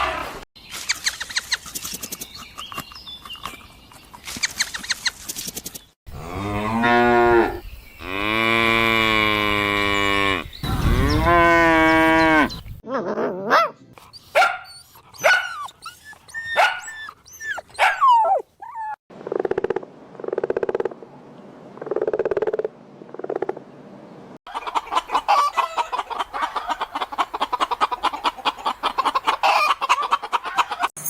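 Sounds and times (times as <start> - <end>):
cow mooing: 6.1 - 12.6.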